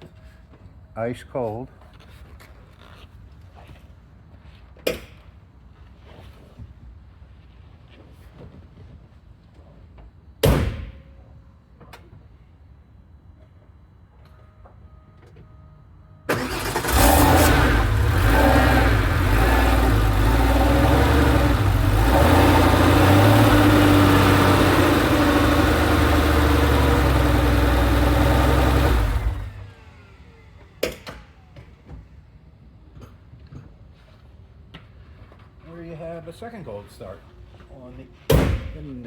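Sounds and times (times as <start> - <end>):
car engine cranking: 16.3 - 30.0
car engine idling: 16.3 - 30.2.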